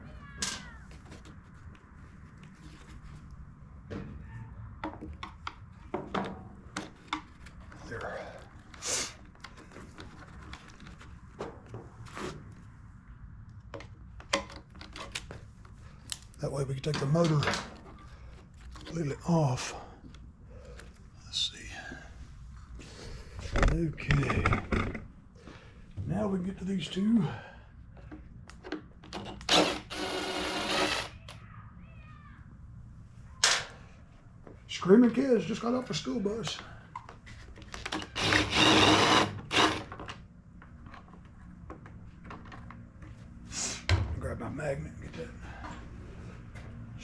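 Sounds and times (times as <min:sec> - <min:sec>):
faint children shrieking: 0:00.0 - 0:01.0, 0:04.1 - 0:04.7, 0:31.1 - 0:32.6
cordless screwdriver running: 0:29.5 - 0:31.1, 0:37.9 - 0:39.9.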